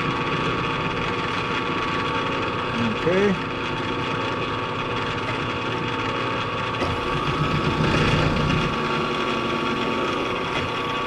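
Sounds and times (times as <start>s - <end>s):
milling machine motor hum: 0.0s - 11.0s
milling cutter cutting: 6.8s - 11.0s.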